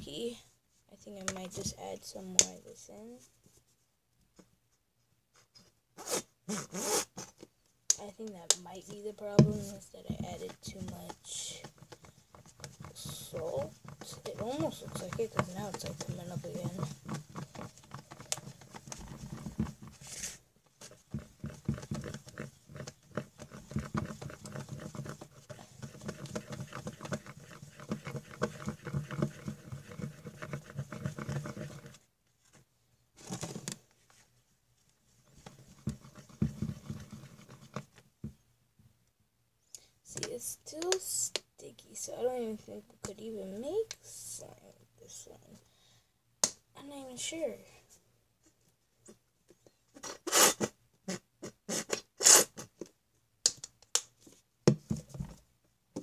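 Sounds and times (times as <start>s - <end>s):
sticky slime squelching: 9.4s - 31.8s.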